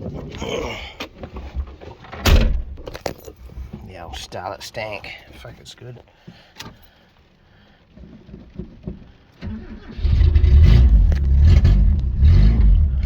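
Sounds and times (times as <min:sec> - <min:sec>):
engine low rumble: 0:09.1 - 0:13.0.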